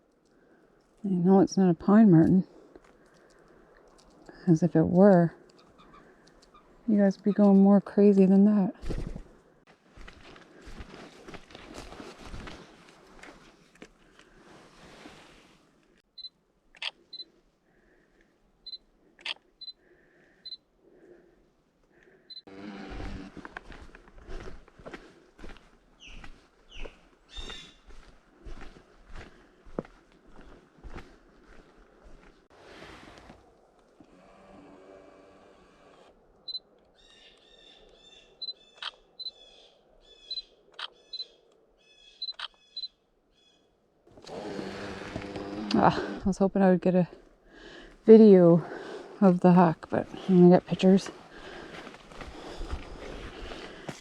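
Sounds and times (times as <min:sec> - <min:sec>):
soft rustling: 0:08.8 - 0:16.0, 0:49.9 - 0:54.0
rapid high bird calls: 0:26.0 - 0:27.8, 0:37.0 - 0:43.7
camera autofocus beeps: 0:40.3 - 0:41.3, 0:42.2 - 0:43.0.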